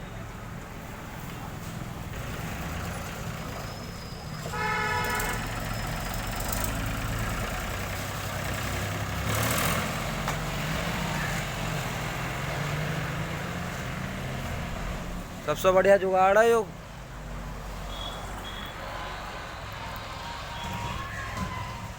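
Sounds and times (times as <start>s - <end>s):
tractor diesel engine running: 0.0s - 15.8s
vehicle horn: 4.4s - 5.6s, 17.9s - 21.8s.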